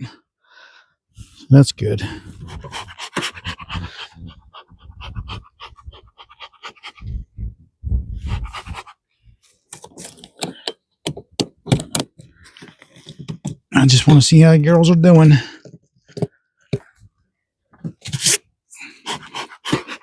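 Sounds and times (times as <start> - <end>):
close breathing: 0.0 - 9.6, 18.7 - 20.0
scrapes clicks and knocks: 9.7 - 13.7.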